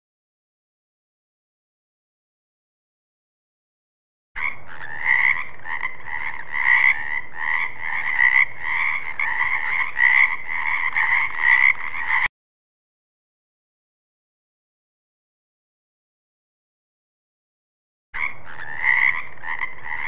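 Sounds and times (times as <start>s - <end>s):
frogs croaking: 4.4s - 12.3s, 18.2s - 20.0s.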